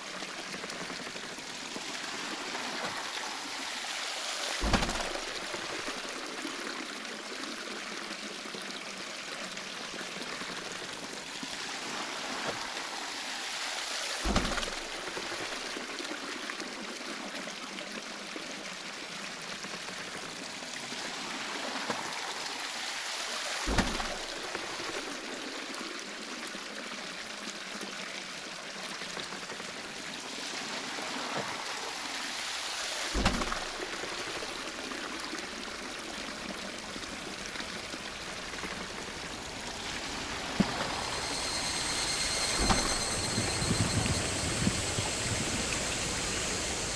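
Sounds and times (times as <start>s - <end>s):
water pouring at waterwheel: 0.0s - 46.9s
low thud: 4.6s - 5.8s.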